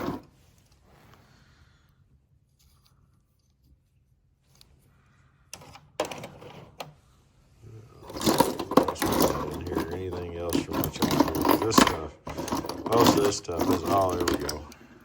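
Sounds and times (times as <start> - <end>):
toy cars clicking and clattering: 8.0 - 14.8.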